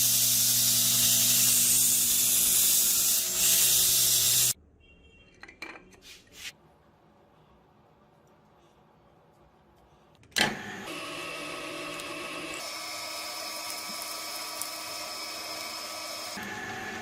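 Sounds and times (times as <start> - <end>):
power tool whine: 10.4 - 17.0.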